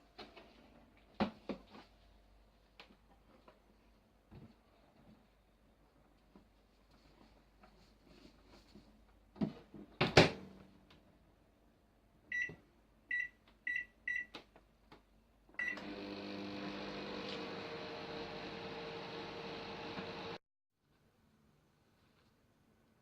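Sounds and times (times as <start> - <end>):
keypad beeps: 12.3 - 14.3
microwave oven humming: 15.6 - 20.4.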